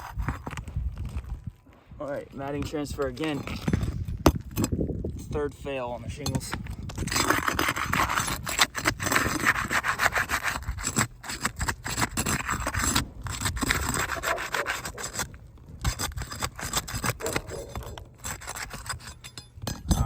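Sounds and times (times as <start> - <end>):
shingles scraping as pried up: 6.7 - 19.9.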